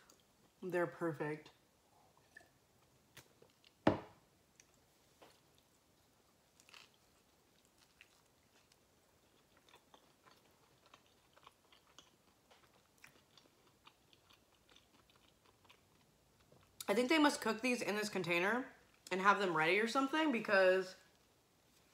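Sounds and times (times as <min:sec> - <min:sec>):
person chewing food: 0:02.2 - 0:03.8, 0:04.5 - 0:16.8
glass set down on table: 0:03.9 - 0:04.1.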